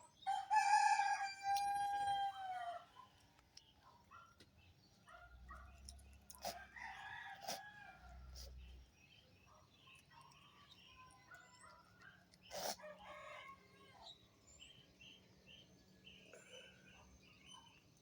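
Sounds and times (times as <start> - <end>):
faint rooster crowing: 0.2 - 3.1, 6.4 - 8.7, 12.7 - 14.3
small birds chirping: 2.8 - 18.0.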